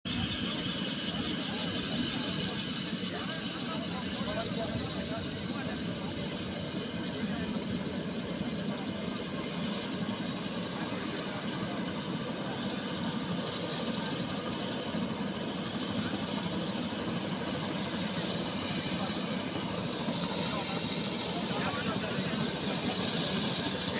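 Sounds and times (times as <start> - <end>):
helicopter engine and rotor: 0.0 - 23.9
high-pitched turbine whine: 0.1 - 23.9.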